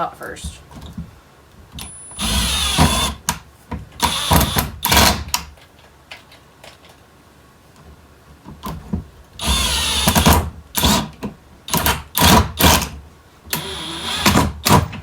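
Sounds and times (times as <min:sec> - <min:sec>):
power drill whirring: 0:01.8 - 0:03.3, 0:04.0 - 0:05.3, 0:09.4 - 0:11.1, 0:13.5 - 0:14.8.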